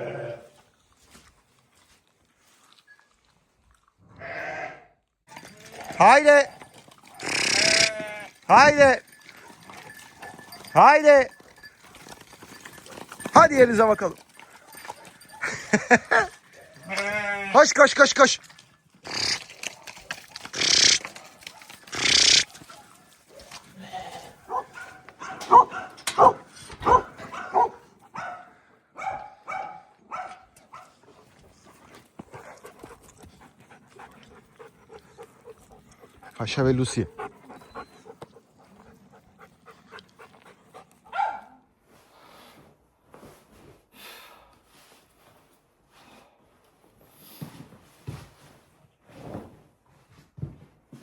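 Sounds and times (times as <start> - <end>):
sheep bleating: 0.0 - 0.5, 4.1 - 6.5, 7.2 - 9.0, 16.5 - 18.1, 20.5 - 21.1, 21.9 - 22.5
faint animal sounds: 0.0 - 0.7, 7.0 - 10.8, 19.0 - 25.0, 32.3 - 41.0
dog panting: 8.6 - 16.7, 24.5 - 28.5, 30.8 - 41.5.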